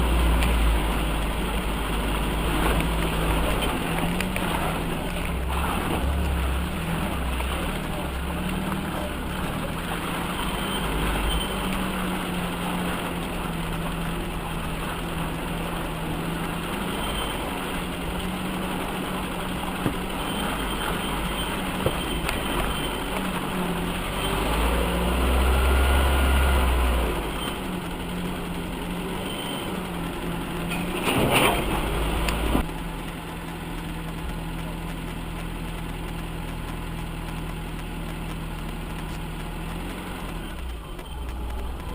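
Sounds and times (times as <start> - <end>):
off-road vehicle engine running: 0.0 - 41.9.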